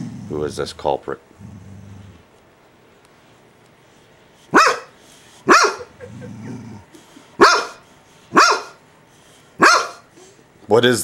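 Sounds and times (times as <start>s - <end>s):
dog barking: 4.5s - 5.9s, 7.4s - 8.8s, 9.6s - 10.1s.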